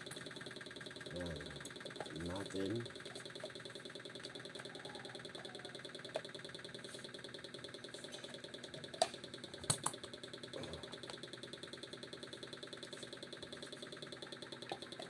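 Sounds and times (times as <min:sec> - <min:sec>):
small motor running: 0:00.0 - 0:15.0
parts clicking when handled: 0:08.0 - 0:10.2.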